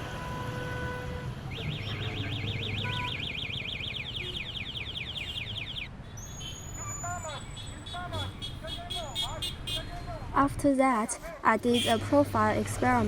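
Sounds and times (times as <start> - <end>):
low traffic rumble: 0.0 - 13.0
car alarm siren: 1.5 - 8.0.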